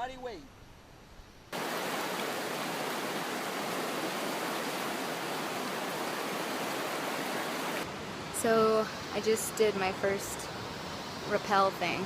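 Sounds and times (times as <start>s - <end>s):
rushing falling water: 1.5s - 9.4s.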